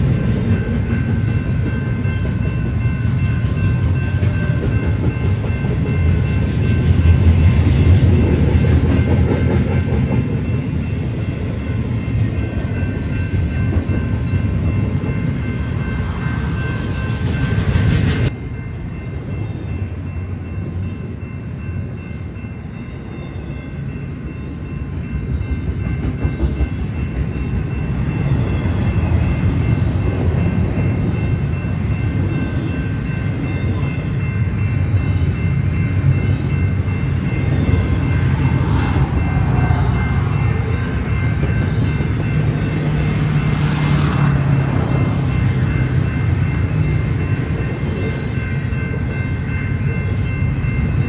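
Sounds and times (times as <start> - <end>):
freight train rumbling past: 0.0 - 51.0.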